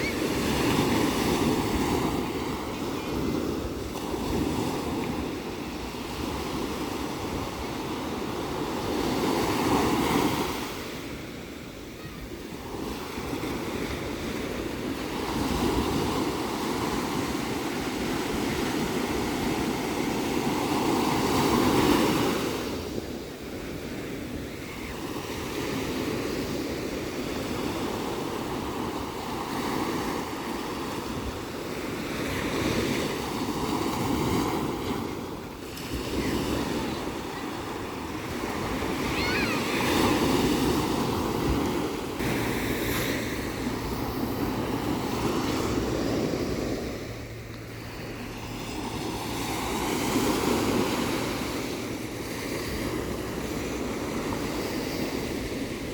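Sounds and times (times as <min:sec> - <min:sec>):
ocean waves breaking: 0:00.0 - 0:55.9
wind rumble on microphone: 0:12.4 - 0:55.9.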